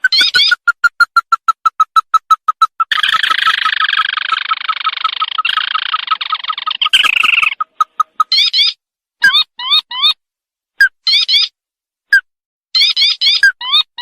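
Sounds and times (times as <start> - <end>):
churring trill: 0.0 - 9.9
crake calling: 0.0 - 10.2.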